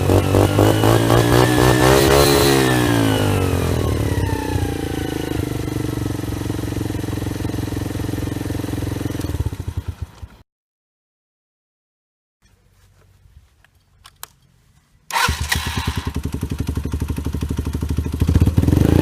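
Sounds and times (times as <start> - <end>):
motorcycle engine revving and idling: 0.0 - 10.4, 15.1 - 19.0.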